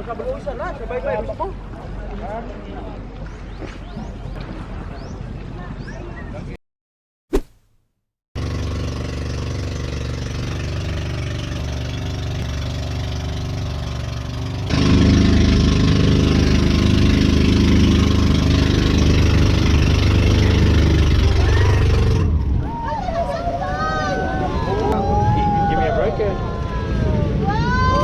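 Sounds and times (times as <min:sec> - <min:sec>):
motor engine running: 0:08.4 - 0:22.4.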